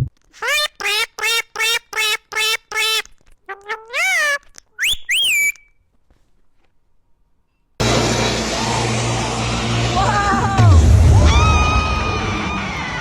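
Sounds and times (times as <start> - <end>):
parrot calling: 0.4 - 5.7.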